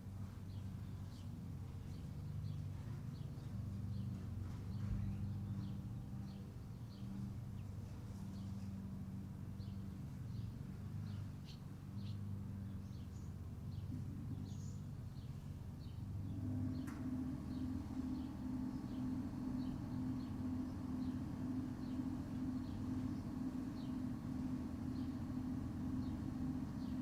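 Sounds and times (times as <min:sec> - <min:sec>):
steady low hum: 0:00.0 - 0:27.0
birds chirping: 0:00.2 - 0:27.0
pulsing low hum: 0:12.9 - 0:27.0.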